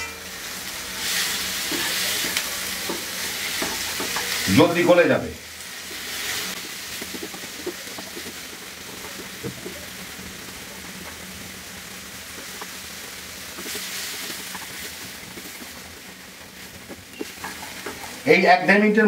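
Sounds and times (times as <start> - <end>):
tomatoes sizzling in a frying pan: 0.0 - 19.0
spatula scraping and tapping pan: 1.1 - 5.0, 5.8 - 9.9, 12.3 - 12.8, 13.4 - 18.3.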